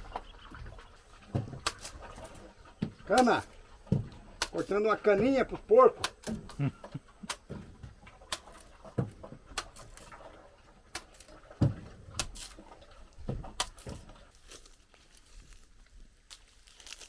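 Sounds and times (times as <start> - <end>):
sugarcane stalks cracking: 1.6 - 3.6, 4.4 - 4.8, 6.0 - 6.6, 7.2 - 8.9, 9.5 - 12.8, 13.4 - 17.0.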